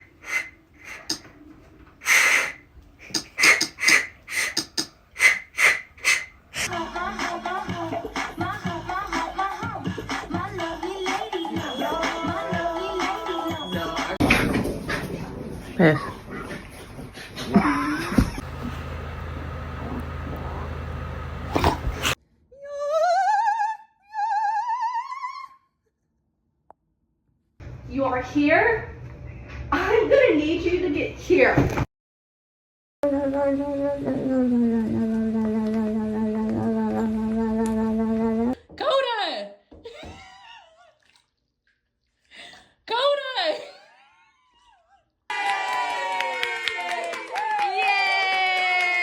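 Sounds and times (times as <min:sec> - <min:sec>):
operatic voice singing high notes: 0:06.7 - 0:14.2
low hum: 0:17.6 - 0:22.2
dog snorting: 0:21.5 - 0:22.2.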